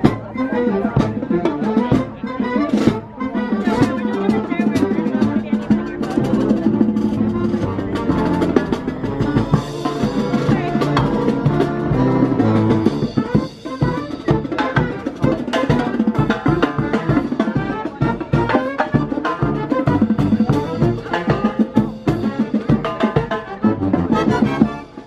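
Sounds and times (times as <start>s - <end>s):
band playing upbeat tune: 0.0s - 25.0s
drums and percussion: 0.0s - 25.0s.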